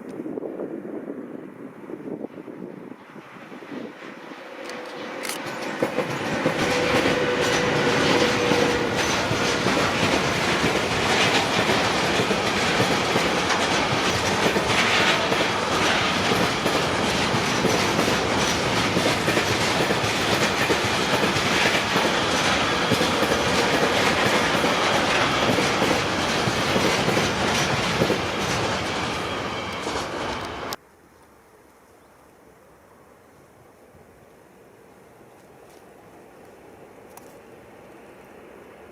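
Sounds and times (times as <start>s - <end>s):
train wheels clattering on rails: 4.6s - 30.8s.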